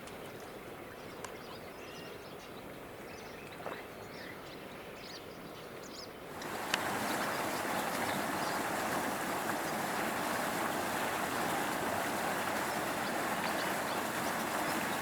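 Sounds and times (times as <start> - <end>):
outdoor hiss: 6.3 - 15.0
birds chirping and singing: 6.4 - 15.0.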